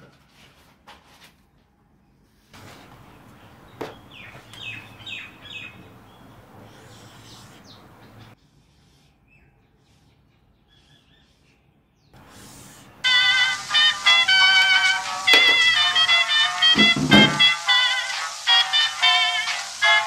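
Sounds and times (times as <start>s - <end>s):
background hiss: 2.6s - 8.4s, 12.2s - 20.0s
bird chirping: 2.6s - 8.4s.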